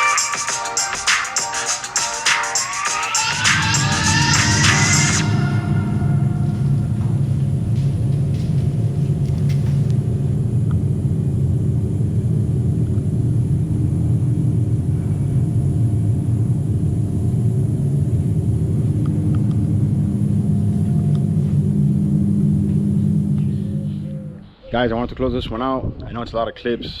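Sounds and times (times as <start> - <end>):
vehicle engine rumbling: 3.0 - 24.5.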